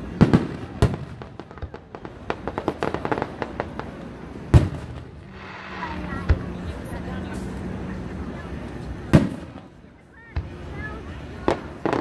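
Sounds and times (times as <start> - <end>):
fireworks crackling pops: 0.2 - 7.6, 8.8 - 9.7, 11.4 - 12.0.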